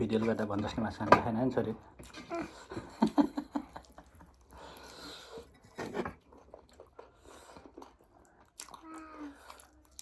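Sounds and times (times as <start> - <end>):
chewing and biting food: 6.2 - 10.0.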